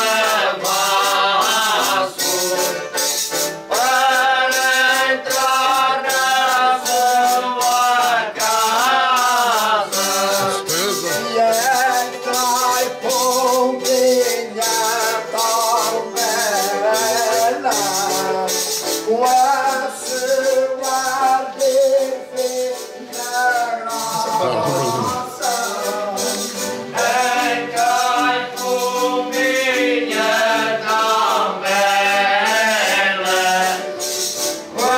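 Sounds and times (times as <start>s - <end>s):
people singing a slow chant: 0.0s - 2.8s, 3.7s - 13.9s, 23.5s - 34.9s
jingling hand percussion: 0.0s - 34.9s.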